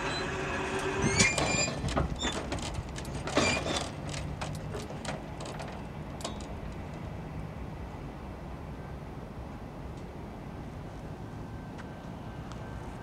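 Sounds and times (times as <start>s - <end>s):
high wheel squeals: 0.0s - 4.0s.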